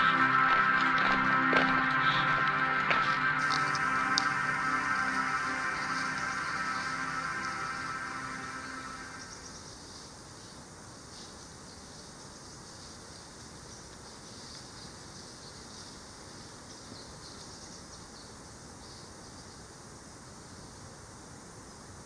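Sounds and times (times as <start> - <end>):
background music: 0.0 - 9.4
insects chirping: 3.3 - 22.0.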